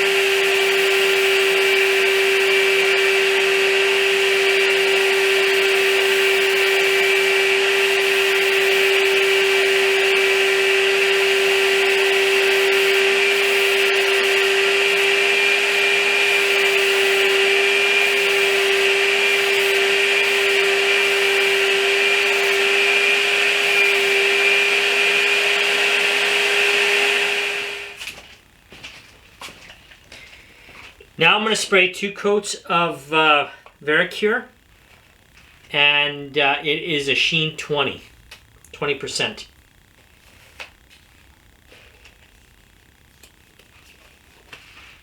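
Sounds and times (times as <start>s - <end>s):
paint sprayer motor whine: 0.0s - 28.2s.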